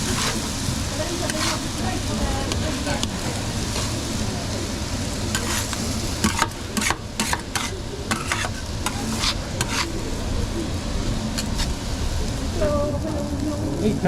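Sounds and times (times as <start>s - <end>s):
metal utensil scraping a pan: 0.0s - 0.5s, 1.1s - 1.8s, 5.3s - 10.0s
low kitchen rumble: 0.0s - 14.0s.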